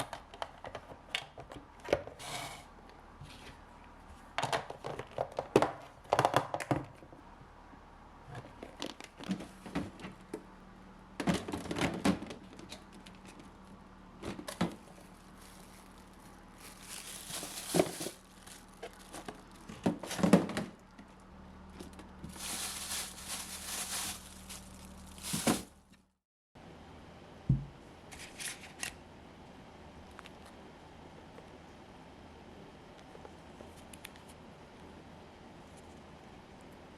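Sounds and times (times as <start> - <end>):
faint steady hum: 0.0 - 36.9
plastic packaging crinkling: 14.6 - 20.3, 21.9 - 25.9.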